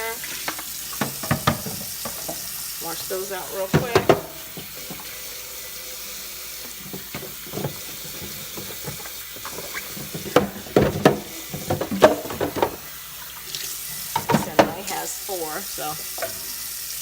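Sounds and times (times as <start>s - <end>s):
tap water running into sink: 0.0s - 17.0s
plastic bins clattering: 0.4s - 5.2s, 6.7s - 13.0s, 14.2s - 15.0s.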